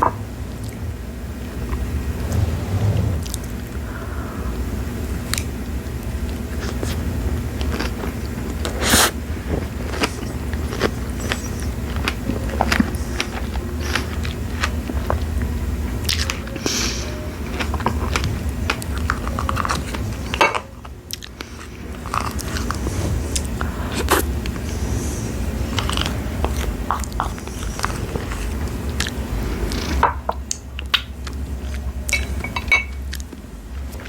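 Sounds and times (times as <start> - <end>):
chewing strawberries: 6.6 - 20.2, 21.1 - 30.0.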